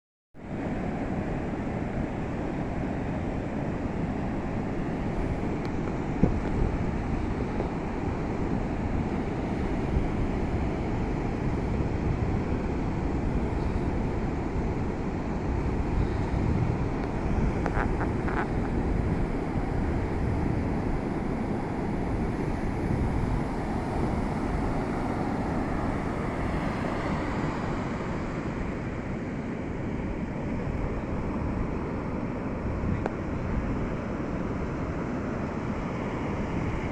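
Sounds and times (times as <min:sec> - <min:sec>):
ocean surf on beach: 0:00.4 - 0:36.9
wind rumble on microphone: 0:00.4 - 0:36.9.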